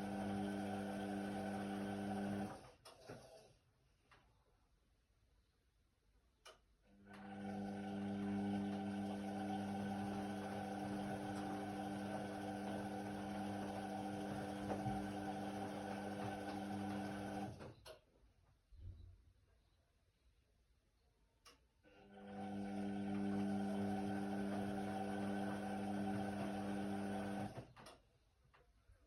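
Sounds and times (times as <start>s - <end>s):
washing machine pump humming: 0.0s - 2.6s, 7.1s - 17.8s, 22.1s - 27.6s.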